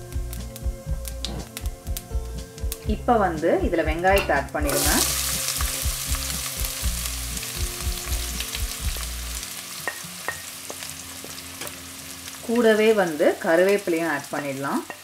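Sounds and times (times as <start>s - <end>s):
onions sizzling in oil: 3.9s - 15.0s.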